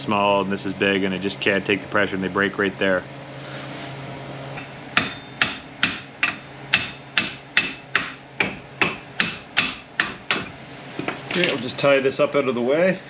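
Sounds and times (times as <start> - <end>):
hand tool tapping metal: 5.0 - 11.7.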